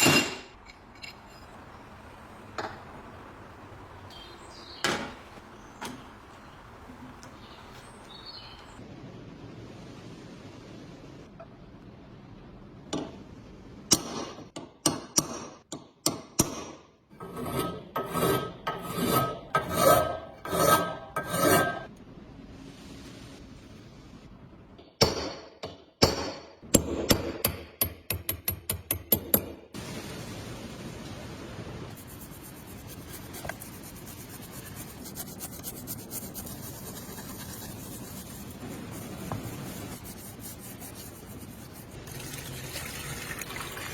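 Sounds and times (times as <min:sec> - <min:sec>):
hand scraping metal part: 0:17.2 - 0:21.9
hand scratching and rubbing a surface: 0:32.0 - 0:42.0.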